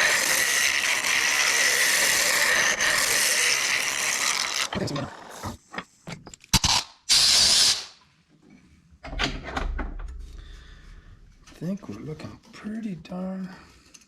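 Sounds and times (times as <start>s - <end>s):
lathe tool scraping wood: 0.0s - 5.6s.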